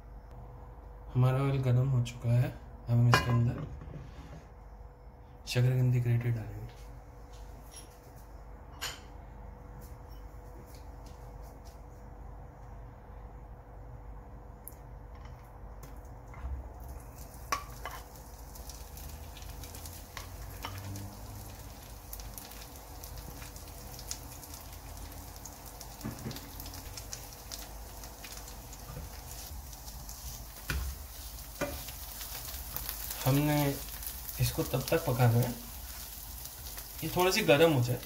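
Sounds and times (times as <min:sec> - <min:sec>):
sweet potato sizzling in oil: 0:16.6 - 0:38.0.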